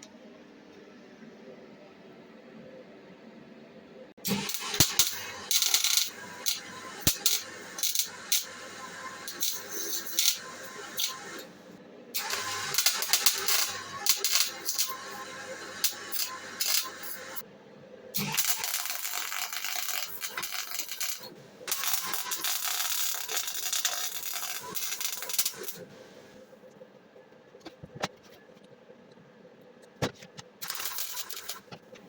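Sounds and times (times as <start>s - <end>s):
metal parts scraping and rattling: 30.6s - 32.0s.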